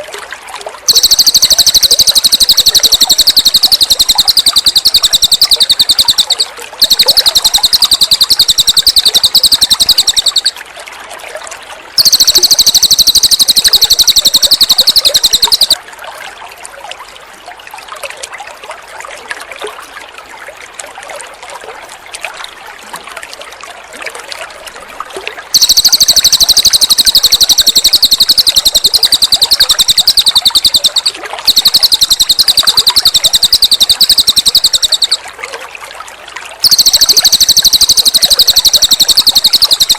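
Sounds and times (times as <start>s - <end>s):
trickling water: 0.0s - 39.9s
bird singing fast trills: 0.9s - 10.6s, 12.0s - 15.8s, 25.6s - 35.2s.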